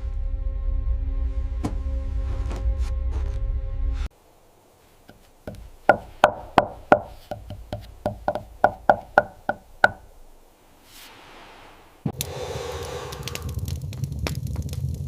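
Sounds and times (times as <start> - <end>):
hammer knocking on wood: 5.5 - 10.1.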